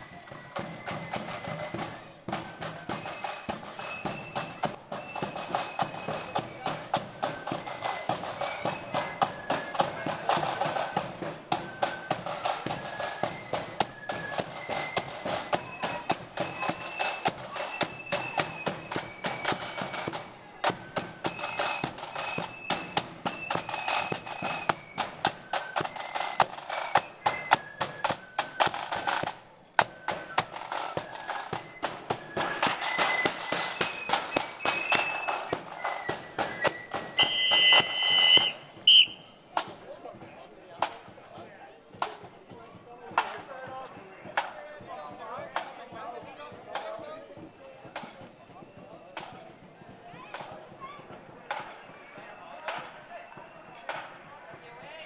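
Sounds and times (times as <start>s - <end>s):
whistle blast: 0.0s - 39.4s
high flute melody: 0.0s - 39.5s
snare and bass drum beats: 0.0s - 55.0s.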